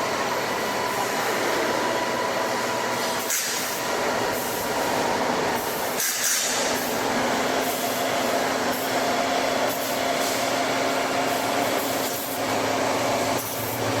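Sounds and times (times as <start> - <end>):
tire shredding machine running: 0.0 - 14.0.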